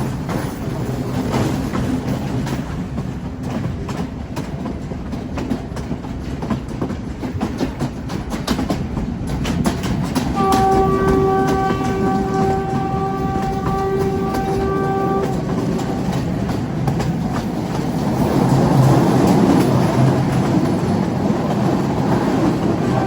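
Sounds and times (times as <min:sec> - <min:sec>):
train rumbling on track: 0:00.0 - 0:23.0
wheels clicking over rail joints: 0:00.0 - 0:23.0
train horn: 0:10.3 - 0:16.6, 0:22.5 - 0:23.0.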